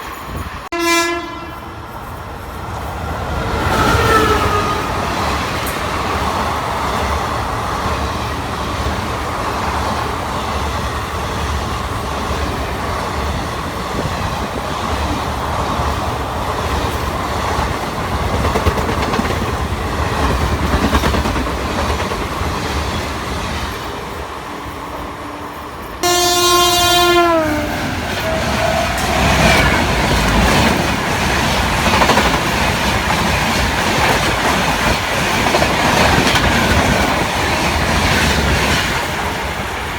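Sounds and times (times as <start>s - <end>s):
locomotive horn: 0.7s - 1.8s, 3.8s - 5.2s, 25.3s - 30.1s
train wheels clattering: 1.9s - 26.0s, 27.8s - 39.5s.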